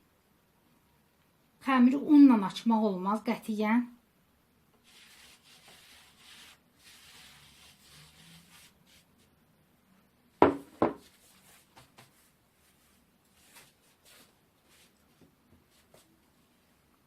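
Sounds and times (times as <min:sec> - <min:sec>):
hands rubbing on table: 0:04.8 - 0:09.1, 0:11.0 - 0:15.0
knocks on table: 0:10.4 - 0:11.0.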